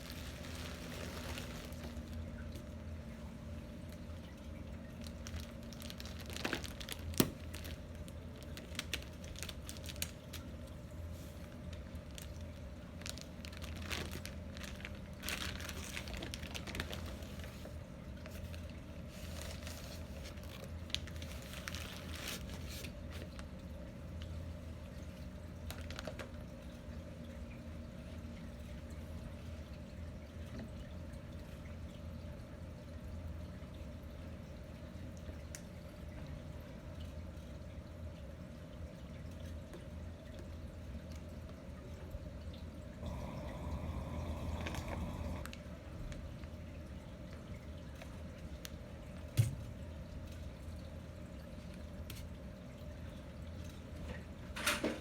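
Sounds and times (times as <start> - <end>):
crinkling rustling handling noises: 0.0 - 2.8, 3.9 - 26.7
steady low hum: 26.5 - 51.5.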